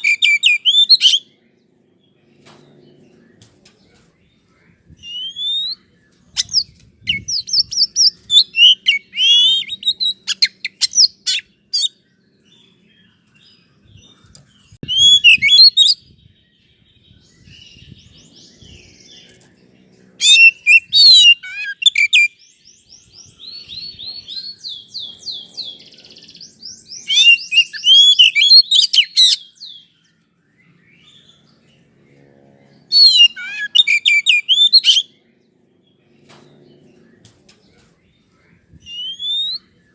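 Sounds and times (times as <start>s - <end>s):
bird singing whistles and trills: 0.0s - 1.4s, 5.0s - 19.5s, 20.2s - 31.6s, 32.9s - 35.2s, 38.7s - 39.9s.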